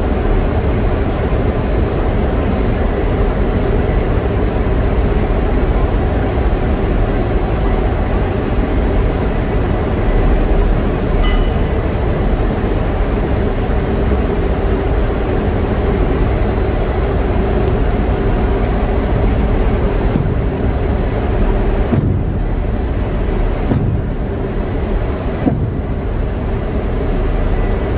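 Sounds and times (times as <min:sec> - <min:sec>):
heavy machinery running: 0:00.1 - 0:27.9
short high ring: 0:11.2 - 0:12.5.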